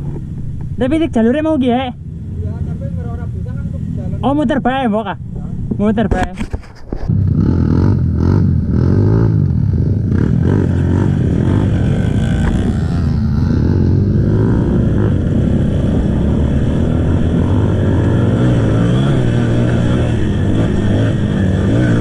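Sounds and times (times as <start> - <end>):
motorcycle engine revving: 7.1 - 22.0.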